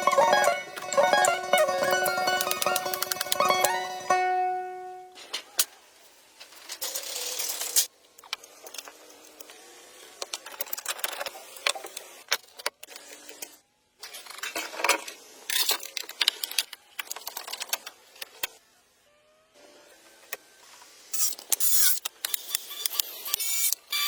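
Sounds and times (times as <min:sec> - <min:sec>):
hard objects knocking and clicking: 0:00.2 - 0:03.8.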